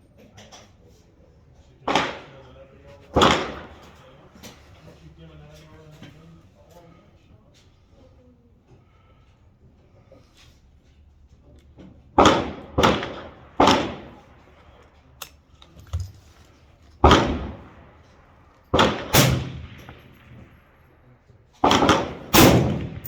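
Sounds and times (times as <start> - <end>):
rifle shots with echo: 1.9 - 2.3, 3.1 - 4.2, 12.2 - 14.9, 17.0 - 23.0.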